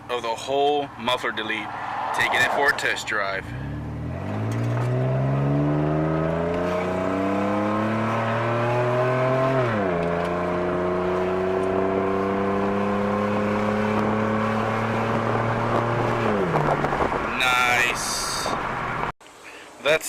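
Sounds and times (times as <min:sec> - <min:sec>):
car engine accelerating: 0:03.4 - 0:17.3.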